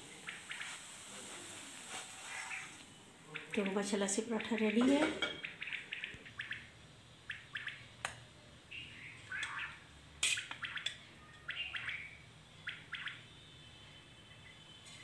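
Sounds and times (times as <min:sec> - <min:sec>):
small birds chirping: 0:02.3 - 0:08.0, 0:08.7 - 0:13.6.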